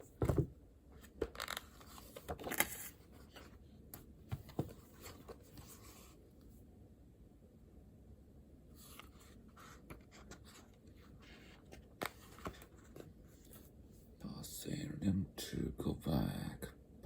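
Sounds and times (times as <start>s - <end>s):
paper and pen rustling: 0.0s - 3.6s, 8.8s - 13.7s.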